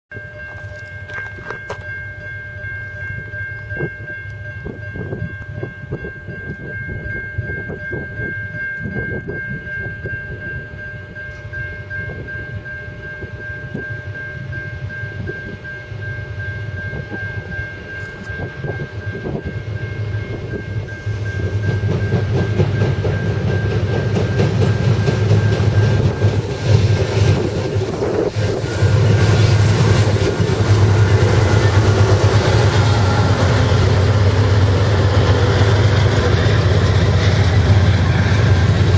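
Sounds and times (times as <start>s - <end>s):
diesel locomotive rumble: 0.2s - 38.9s
distant train horn chord: 10.7s - 38.9s.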